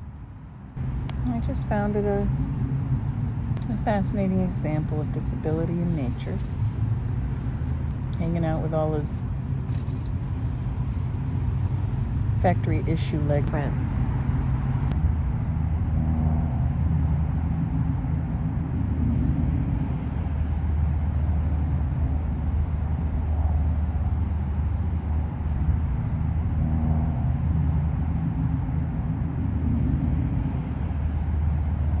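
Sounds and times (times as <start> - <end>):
low mechanical hum and rumble: 0.0 - 32.0.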